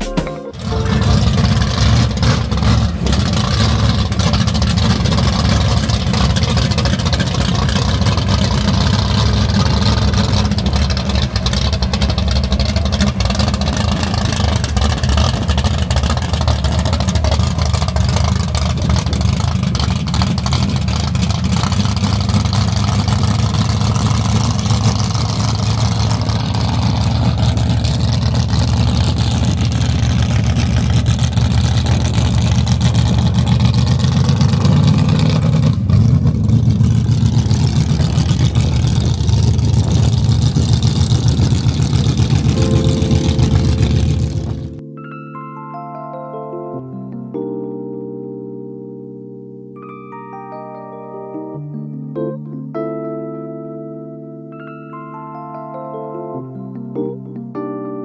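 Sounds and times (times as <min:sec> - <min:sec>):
car engine running: 0:00.0 - 0:44.8.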